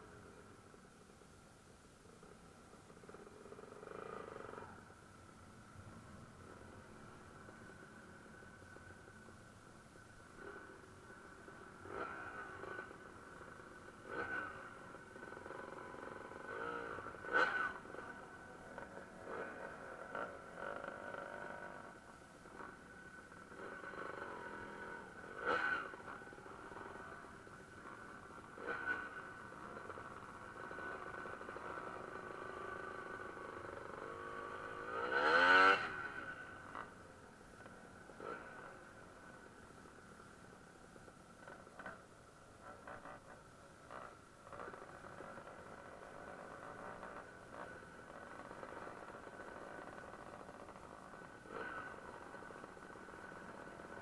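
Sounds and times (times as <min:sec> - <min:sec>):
dirt bike engines revving: 0:03.0 - 0:04.8, 0:10.4 - 0:40.1, 0:42.6 - 0:54.0.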